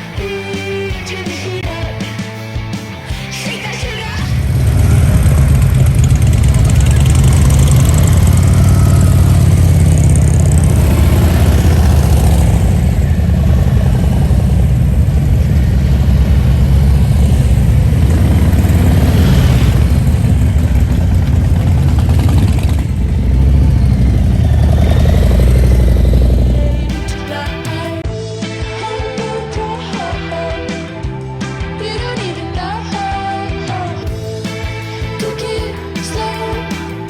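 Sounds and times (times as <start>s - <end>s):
motorcycle engine rumbling: 3.9s - 28.0s.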